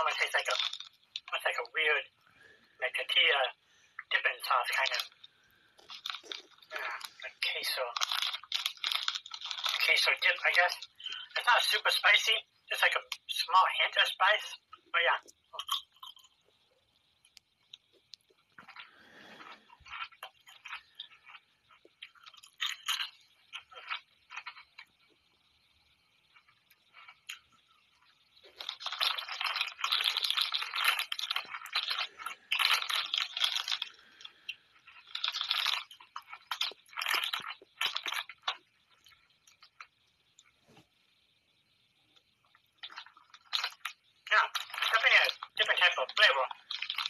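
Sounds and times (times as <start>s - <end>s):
person crunching snacks: 0.4s - 1.3s, 5.8s - 7.2s, 7.9s - 11.3s, 15.6s - 16.3s, 17.7s - 25.3s, 26.3s - 39.9s, 42.8s - 45.6s, 46.5s - 47.0s.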